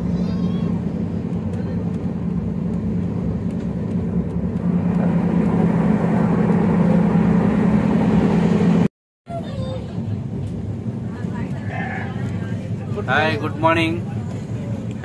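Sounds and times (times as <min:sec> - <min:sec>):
constant hum: 0:00.0 - 0:15.0
train running rumble: 0:00.0 - 0:15.0.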